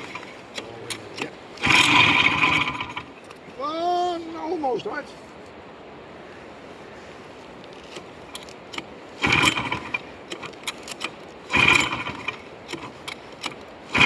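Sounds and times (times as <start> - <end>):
motorcycle engine cranking: 0.0 - 3.4, 7.9 - 14.0
clicks and metal rattles: 7.9 - 12.0.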